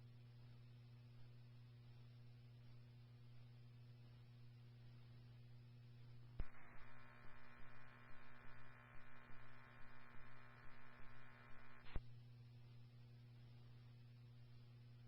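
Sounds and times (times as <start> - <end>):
buzzy pulsing radio tone: 6.4 - 12.0
radio hum: 6.4 - 12.0
radio transmission click: 6.4 - 12.0.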